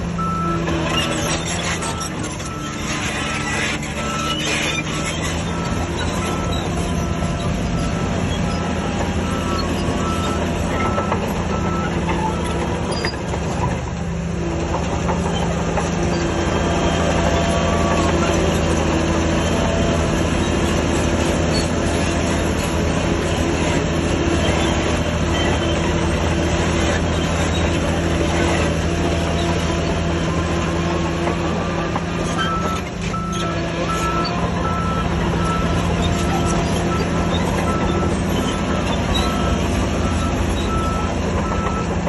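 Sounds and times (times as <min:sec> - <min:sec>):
heavy diesel machinery running: 0:00.0 - 0:42.0
reversing alarm beeping: 0:00.2 - 0:13.2, 0:32.3 - 0:42.0.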